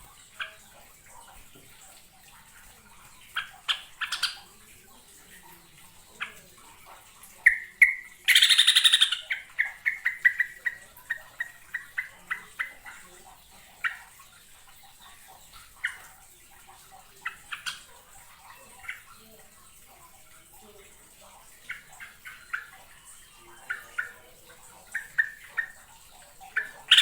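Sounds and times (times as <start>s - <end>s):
bird chattering call: 7.4s - 12.9s, 26.5s - 27.0s.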